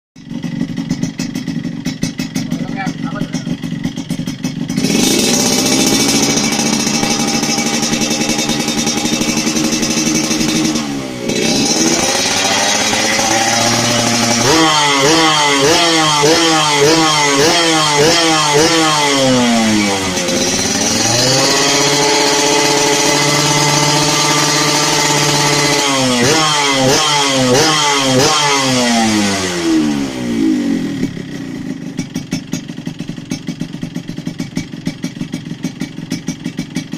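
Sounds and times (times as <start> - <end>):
two-stroke motorcycle engine revving: 0.2 - 36.9.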